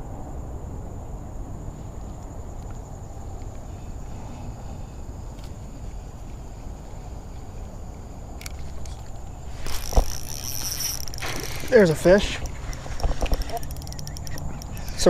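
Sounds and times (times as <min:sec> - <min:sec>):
high-pitched insect trill: 0:01.5 - 0:15.0
faint clicks: 0:08.4 - 0:15.0.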